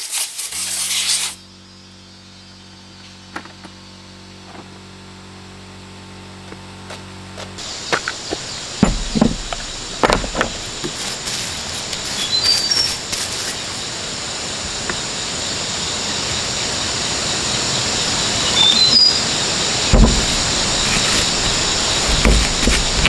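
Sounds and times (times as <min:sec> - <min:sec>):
high insect-like hiss: 0:00.0 - 0:02.2, 0:07.6 - 0:23.0
knocks of parts handled: 0:07.6 - 0:13.9, 0:19.8 - 0:23.0
high bird-like chirps: 0:17.5 - 0:19.6.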